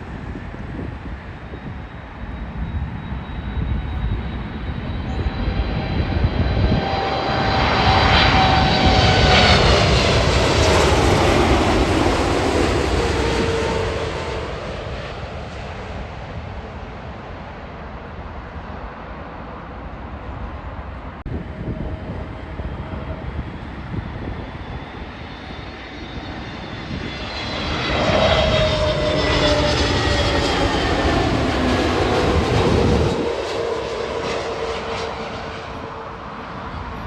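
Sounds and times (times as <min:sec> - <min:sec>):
jet airliner passing: 0:00.0 - 0:37.0.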